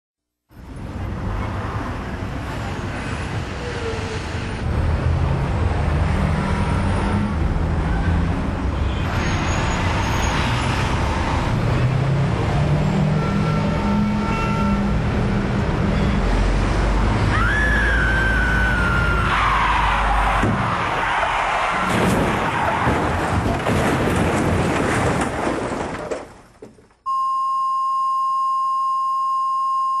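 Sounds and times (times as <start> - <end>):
vehicle engine and road rumble: 0.5 - 27.0
steady high-pitched beep: 27.1 - 30.0.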